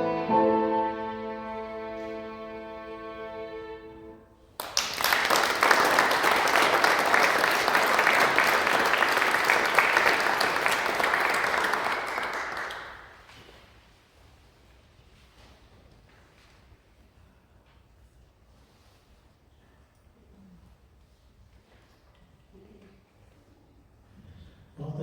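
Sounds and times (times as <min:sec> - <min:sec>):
violins holding a chord: 0:00.0 - 0:04.3
audience applauding: 0:04.6 - 0:13.3.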